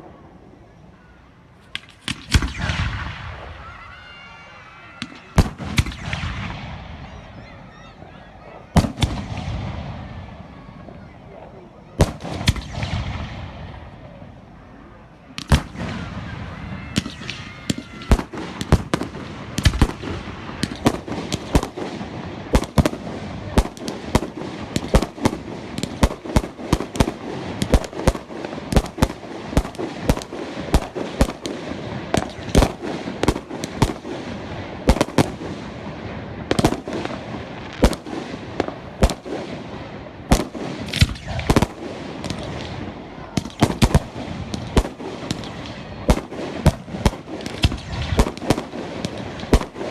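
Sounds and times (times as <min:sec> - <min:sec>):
fireworks crackling: 0:00.0 - 0:49.9
fireworks banging: 0:01.6 - 0:14.4, 0:15.3 - 0:49.9.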